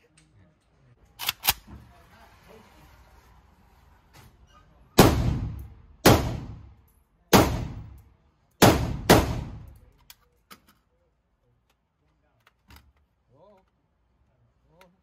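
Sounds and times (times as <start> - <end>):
rifle shots echoing indoors: 5.0 - 9.9.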